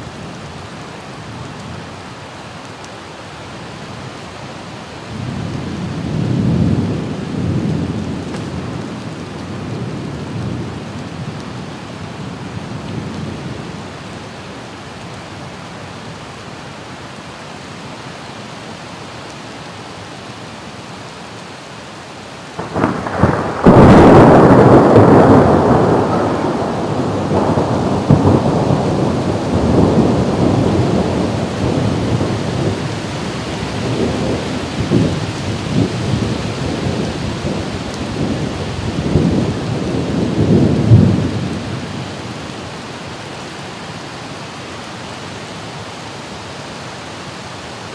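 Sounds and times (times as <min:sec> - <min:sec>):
rain hiss: 0:00.0 - 0:47.9
thunder crack and rumble: 0:22.6 - 0:42.0.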